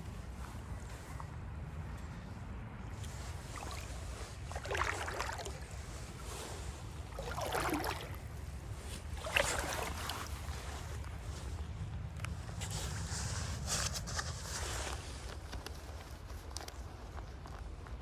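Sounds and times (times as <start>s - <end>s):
wind rumble on microphone: 0.0s - 18.0s
water splashes: 3.0s - 11.2s.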